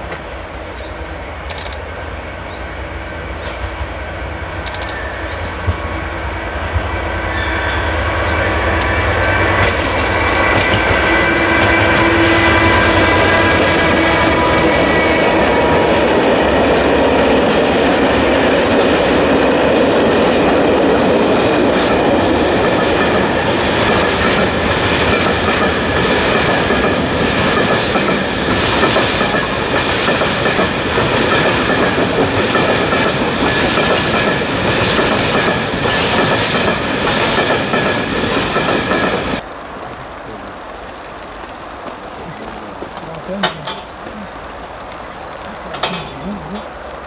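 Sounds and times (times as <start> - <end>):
train wheels clattering over joints: 8.0 - 39.4, 42.8 - 44.2, 45.5 - 46.7.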